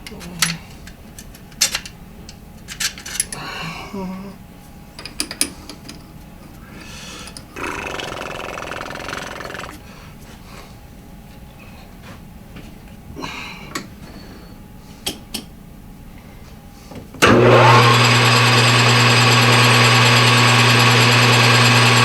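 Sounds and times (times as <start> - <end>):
metal parts clicking: 0.0 - 3.4, 5.0 - 6.0
small power tool running: 17.2 - 22.0.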